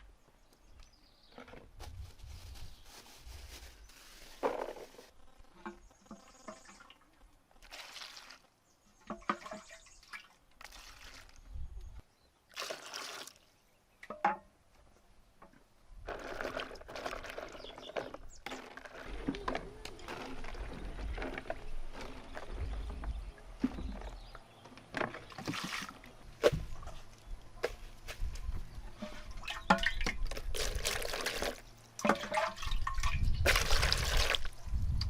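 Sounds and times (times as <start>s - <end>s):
water splashing and pouring: 7.6s - 11.6s, 12.5s - 13.5s, 16.0s - 24.1s, 25.1s - 26.9s, 29.3s - 34.6s.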